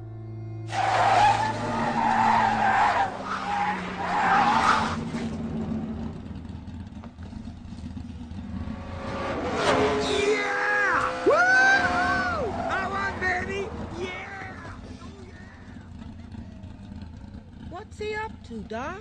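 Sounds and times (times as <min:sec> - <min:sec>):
tyres screeching in a skid: 0:00.7 - 0:05.4, 0:09.1 - 0:17.7.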